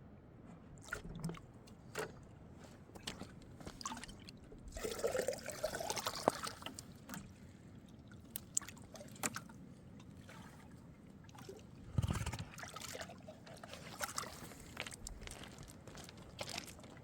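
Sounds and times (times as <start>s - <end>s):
water trickling and splashing: 3.0s - 17.0s.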